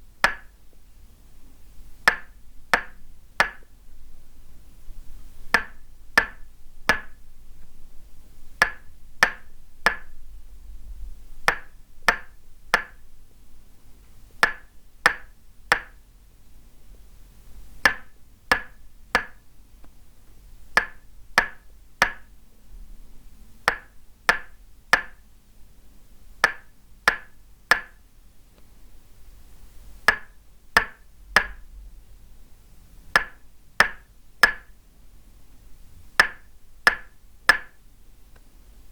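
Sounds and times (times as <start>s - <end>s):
wooden mallet tapping wooden stake: 0.2s - 0.6s, 2.0s - 3.7s, 5.5s - 7.2s, 8.6s - 10.1s, 11.4s - 13.0s, 14.4s - 16.0s, 17.8s - 19.4s, 20.8s - 22.3s, 23.6s - 25.2s, 26.4s - 28.0s, 30.1s - 31.6s, 33.2s - 34.7s, 36.2s - 37.8s.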